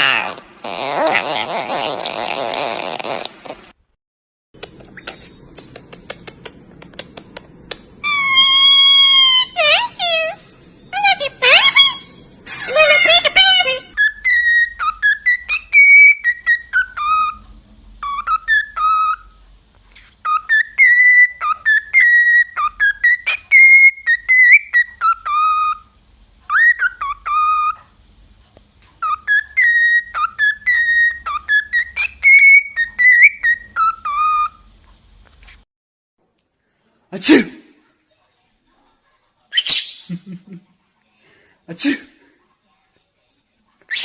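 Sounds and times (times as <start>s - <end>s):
parrot whistling a tune: 8.0s - 10.4s, 12.8s - 17.4s, 18.0s - 19.4s, 20.2s - 27.8s, 29.0s - 34.7s.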